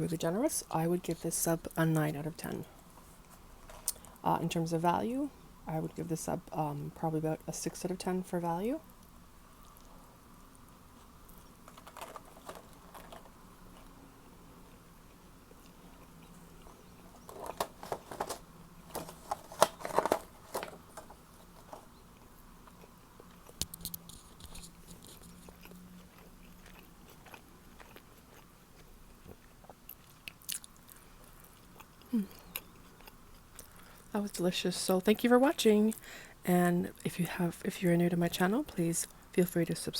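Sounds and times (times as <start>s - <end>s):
crunchy bites of sandwich: 21.4s - 34.1s
wet chewing: 21.4s - 34.1s.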